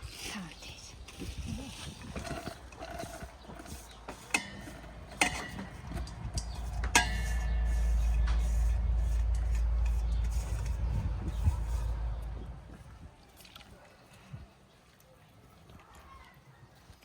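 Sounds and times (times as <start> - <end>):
cookware clinking: 4.3 - 8.5
steady low rumble: 4.4 - 13.0.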